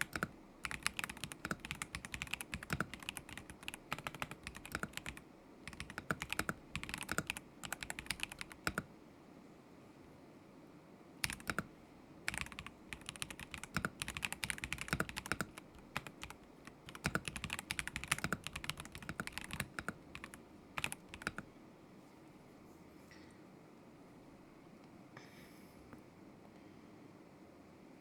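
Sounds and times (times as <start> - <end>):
mechanical keyboard clacking: 0.0 - 8.9, 11.2 - 11.7, 12.3 - 21.4.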